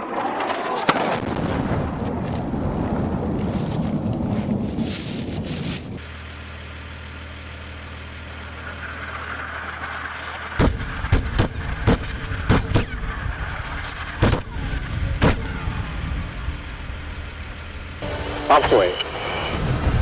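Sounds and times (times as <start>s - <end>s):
low drone: 18.0s - 20.0s.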